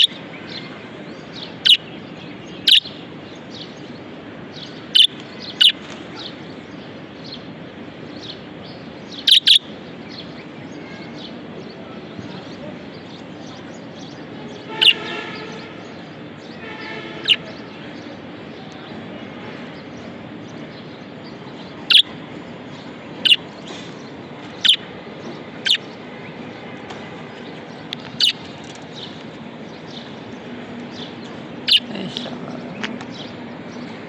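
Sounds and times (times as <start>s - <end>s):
soft bird chatter: 0.0s - 34.0s
budgerigar sharp calls: 1.5s - 1.9s, 2.6s - 3.0s, 4.8s - 6.4s, 9.2s - 9.7s, 14.7s - 15.6s, 17.2s - 17.6s, 21.8s - 22.1s, 23.2s - 23.4s, 24.6s - 24.9s, 25.6s - 25.9s, 28.2s - 28.4s, 31.6s - 31.9s.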